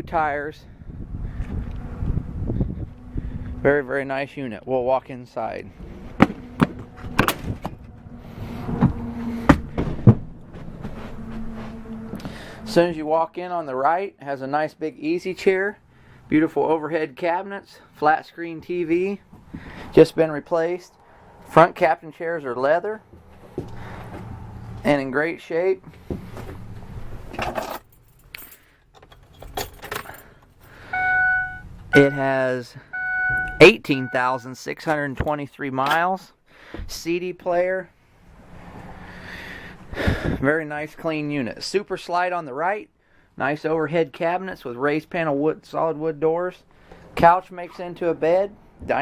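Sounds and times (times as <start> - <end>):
keys jangling: 27.4 - 30.6.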